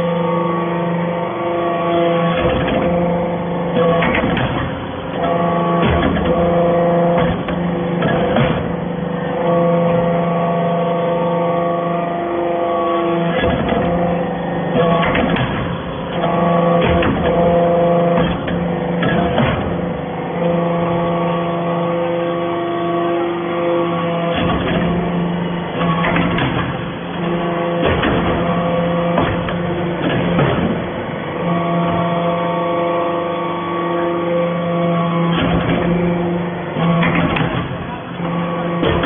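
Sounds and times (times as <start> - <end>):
hydraulic press machine hum: 0.0 - 39.0
sharp metallic knocks: 3.8 - 8.8, 14.8 - 21.9, 25.8 - 32.3, 38.6 - 39.0.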